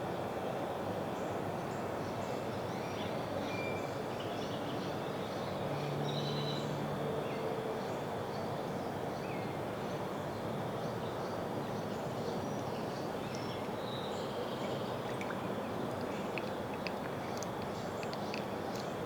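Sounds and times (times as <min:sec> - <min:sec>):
outdoor background rush: 0:06.8 - 0:19.0.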